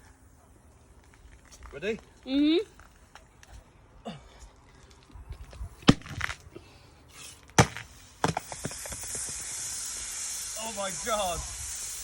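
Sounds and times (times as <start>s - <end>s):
fizzing soda spraying: 7.1s - 12.0s.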